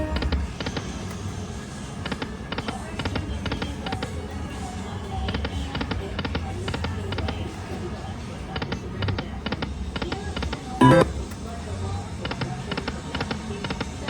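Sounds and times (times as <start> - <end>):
electronic game music: 10.8 - 11.2
low casino hum: 10.8 - 11.2.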